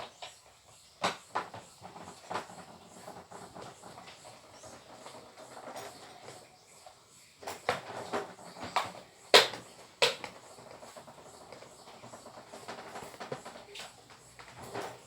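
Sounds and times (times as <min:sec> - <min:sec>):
plastic parts knocking and clicking: 0:07.4 - 0:15.0.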